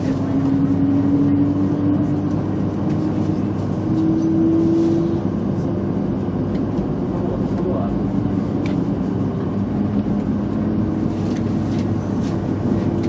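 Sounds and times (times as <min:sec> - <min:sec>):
train running noise inside car: 0:00.0 - 0:13.0.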